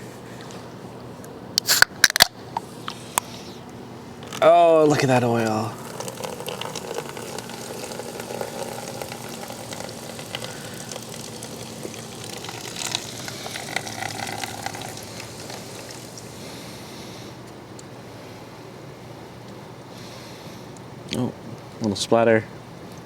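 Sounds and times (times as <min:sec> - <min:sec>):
liquid pouring into a drain pan: 0:05.5 - 0:16.4.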